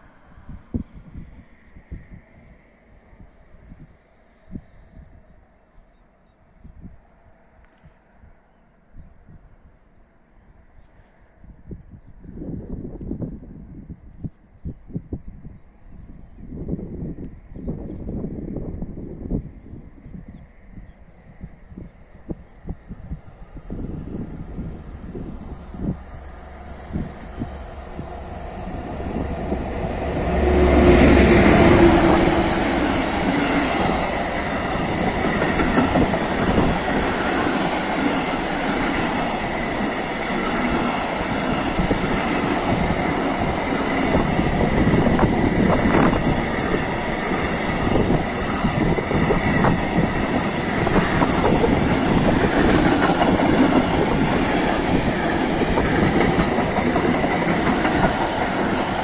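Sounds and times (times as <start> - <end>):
electric locomotive passing: 0.0 - 5.8, 20.6 - 59.0
wheels clacking over rail joints: 49.4 - 59.0.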